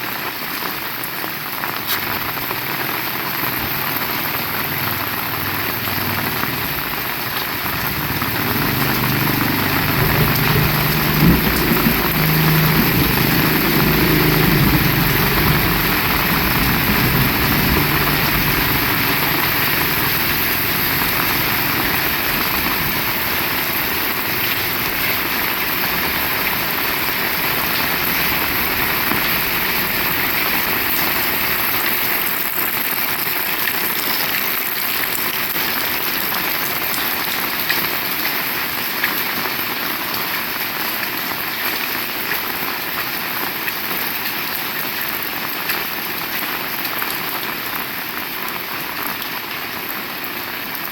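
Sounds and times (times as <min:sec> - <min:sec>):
heavy rain falling: 0:00.0 - 0:50.9
vehicle engine running: 0:04.1 - 0:32.3.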